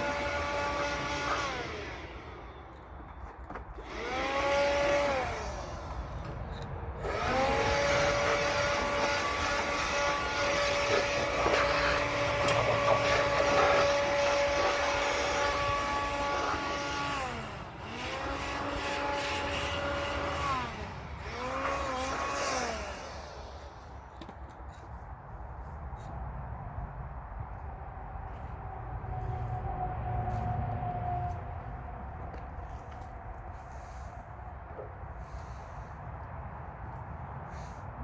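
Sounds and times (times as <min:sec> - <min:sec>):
electric saw cutting firewood: 0:00.0 - 0:24.9, 0:31.3 - 0:36.0.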